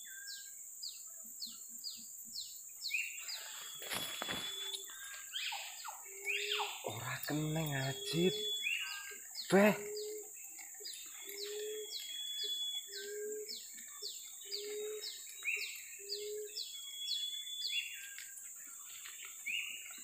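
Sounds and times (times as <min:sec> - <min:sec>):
short descending bird chirps: 0:03.3 - 0:07.0.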